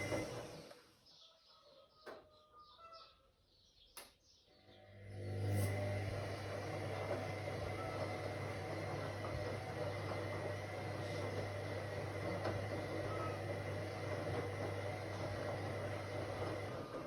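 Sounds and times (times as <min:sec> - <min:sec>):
washing machine motor running: 0:00.0 - 0:00.8, 0:04.7 - 0:17.0.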